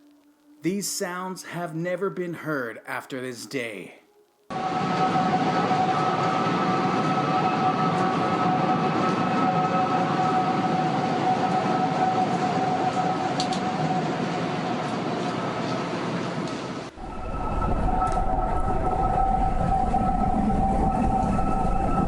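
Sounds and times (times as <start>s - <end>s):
high-pitched wailing tones: 4.1s - 14.6s, 16.9s - 22.0s
wind rushing: 16.9s - 22.0s.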